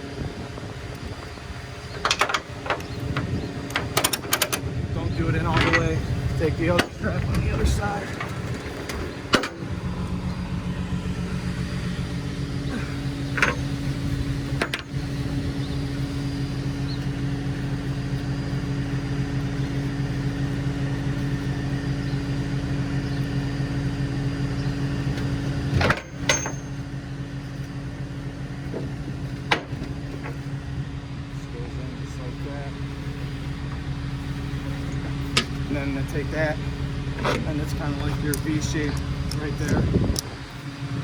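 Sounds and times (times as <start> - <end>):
truck engine idling: 0.0 - 41.0.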